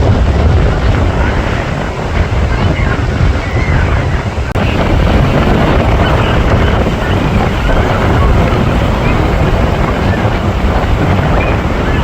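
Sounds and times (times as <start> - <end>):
steady rush of noise: 0.0 - 12.0
wind buffeting microphone: 0.0 - 12.0.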